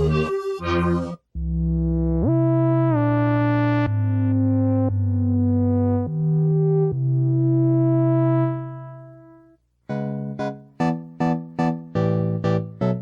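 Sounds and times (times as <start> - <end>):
synthesizer sustained notes: 0.0 - 1.2
synthesizer plucked notes: 0.0 - 9.3.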